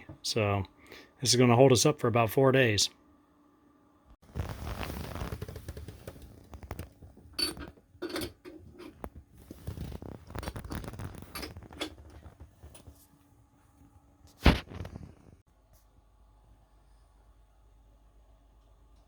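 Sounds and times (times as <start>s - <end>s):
clicks knocks and scraping: 5.0s - 13.0s.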